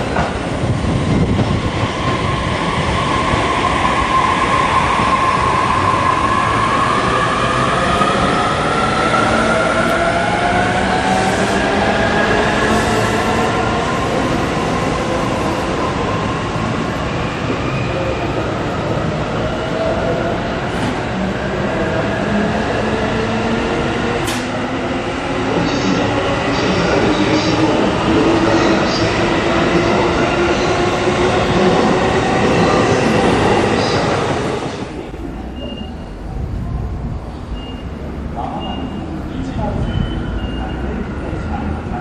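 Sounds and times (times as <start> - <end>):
train wheel and rail noise: 0.0 - 42.0.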